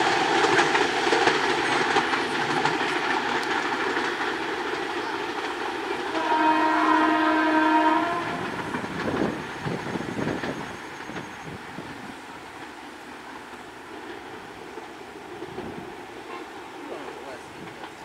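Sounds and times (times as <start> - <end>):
train running on rails: 0.0 - 18.0
train horn: 6.1 - 8.6.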